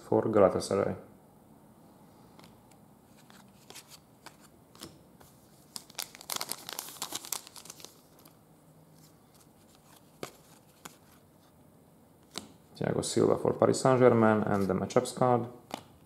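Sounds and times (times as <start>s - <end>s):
wrapper crinkling: 5.6s - 8.4s.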